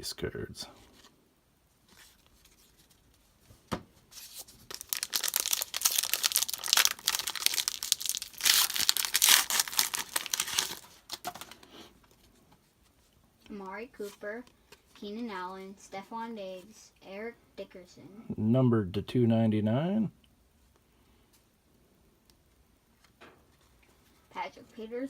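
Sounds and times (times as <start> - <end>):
foil wrapper tearing and crinkling: 4.2 - 11.6.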